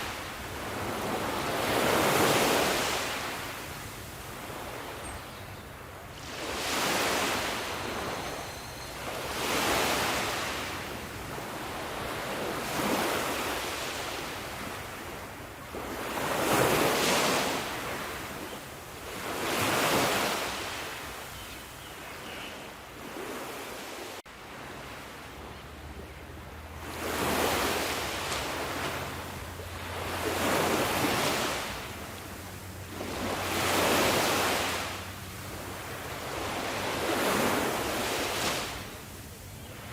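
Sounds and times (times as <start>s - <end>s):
sea waves washing onto shore: 0.0s - 5.0s, 26.5s - 39.9s.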